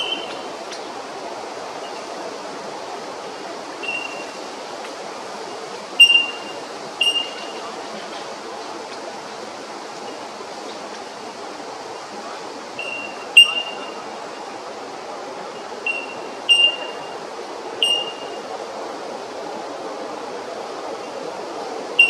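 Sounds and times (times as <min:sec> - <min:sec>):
bird sharp calls: 0:00.0 - 0:00.5, 0:03.8 - 0:04.4, 0:06.0 - 0:07.7, 0:12.8 - 0:14.0, 0:15.8 - 0:17.2, 0:17.8 - 0:18.4
background hiss: 0:00.0 - 0:22.0.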